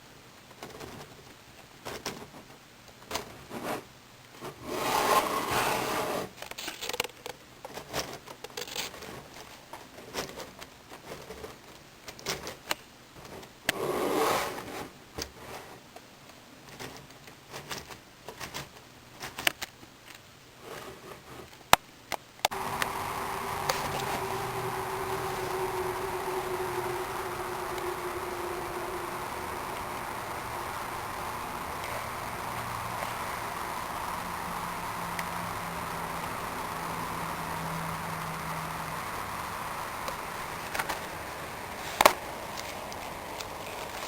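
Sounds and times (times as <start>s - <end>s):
plastic pieces clicking and scraping: 6.4s - 13.5s
steady tonal hum: 22.5s - 44.0s.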